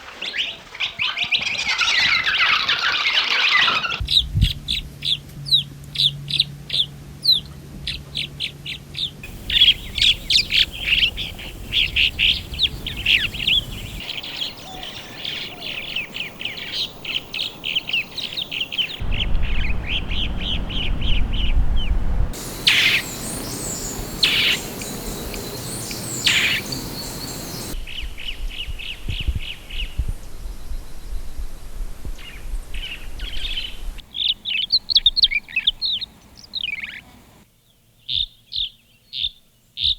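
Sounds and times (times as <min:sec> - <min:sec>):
swallows chirping: 0:09.2 - 0:21.5, 0:22.4 - 0:27.8.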